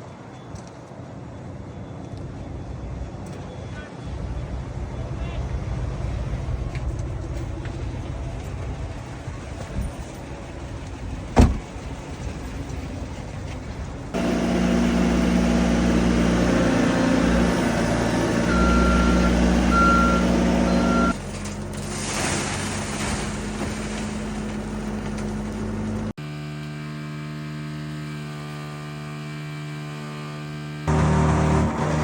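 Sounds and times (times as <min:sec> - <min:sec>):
vehicle engine running: 0:14.1 - 0:22.1, 0:22.7 - 0:32.0
short electronic beeps: 0:18.4 - 0:21.2.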